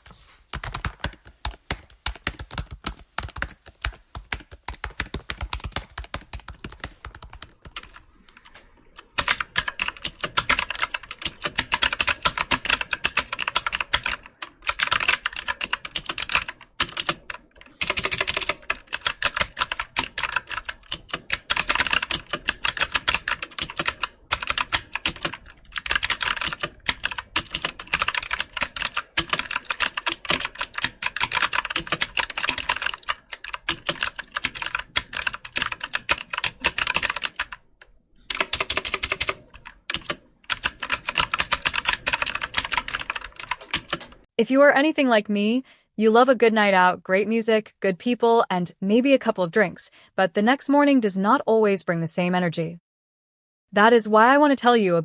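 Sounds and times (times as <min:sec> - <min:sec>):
computer keyboard typing: 0:00.0 - 0:44.3.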